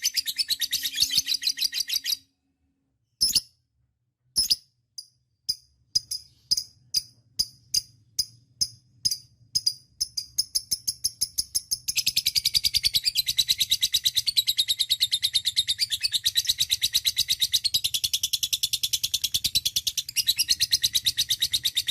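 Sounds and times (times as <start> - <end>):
bird chirping into rapid trill: 0.0 - 2.3.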